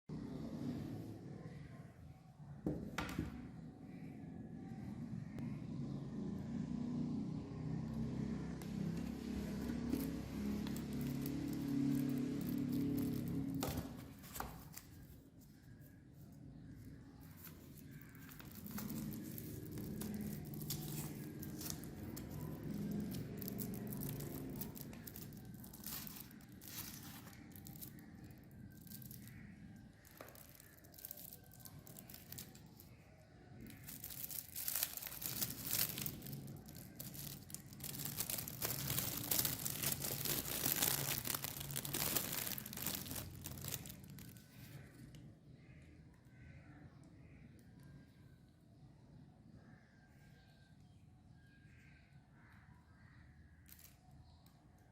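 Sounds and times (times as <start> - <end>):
packaging crinkling and tearing: 8.8 - 15.2, 17.2 - 32.9, 33.6 - 45.0.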